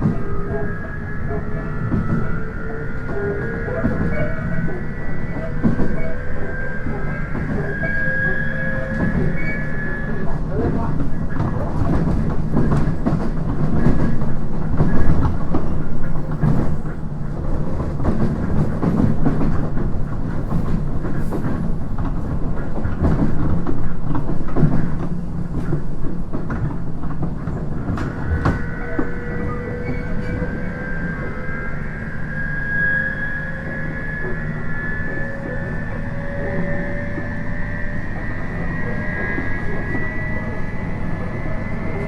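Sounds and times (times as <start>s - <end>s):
high whine: 0.0s - 11.5s, 27.5s - 42.0s
train interior rumble: 0.0s - 42.0s.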